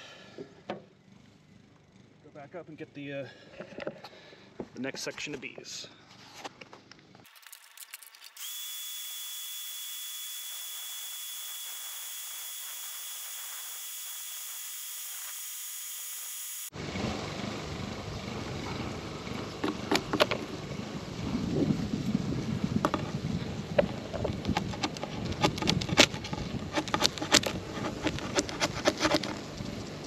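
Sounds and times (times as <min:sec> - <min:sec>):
power tool motor whining: 0:07.3 - 0:16.7, 0:23.7 - 0:29.6
wind on microphone: 0:17.8 - 0:28.8.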